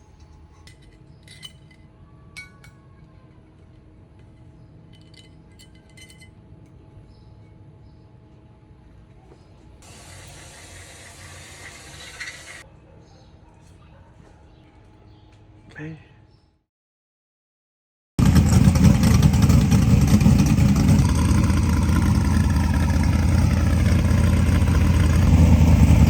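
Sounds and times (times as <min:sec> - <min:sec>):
metallic clinks of tools: 0:00.2 - 0:02.9, 0:04.2 - 0:06.4.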